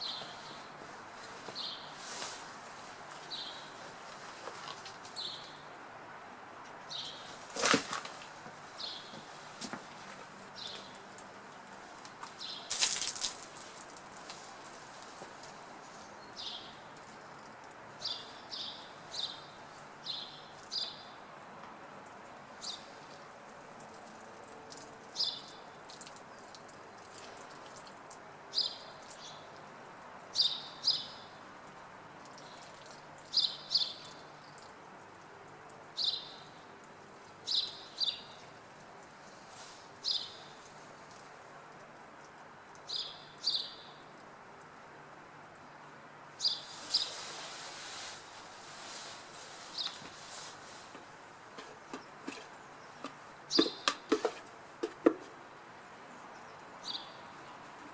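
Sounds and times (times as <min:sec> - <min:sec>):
small birds chirping: 0:00.0 - 0:00.8, 0:01.4 - 0:02.4, 0:03.2 - 0:03.8, 0:12.3 - 0:21.3, 0:22.5 - 0:23.2, 0:23.8 - 0:41.2, 0:42.2 - 0:44.2, 0:46.4 - 0:47.3, 0:49.6 - 0:50.4, 0:51.8 - 0:54.1, 0:56.0 - 0:57.7.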